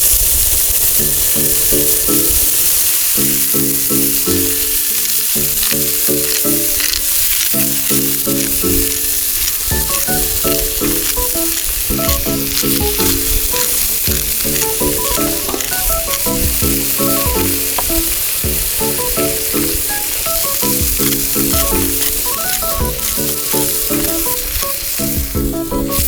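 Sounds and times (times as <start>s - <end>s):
food sizzling in a pan: 0.0s - 26.0s
music with rhythmic chords: 5.4s - 9.1s, 9.7s - 26.0s.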